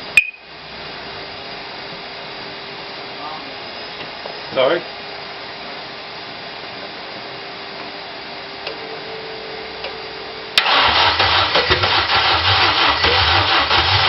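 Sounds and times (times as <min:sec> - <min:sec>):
faint steady whine: 0:00.0 - 0:13.6
engine starting and rumbling: 0:10.6 - 0:14.0.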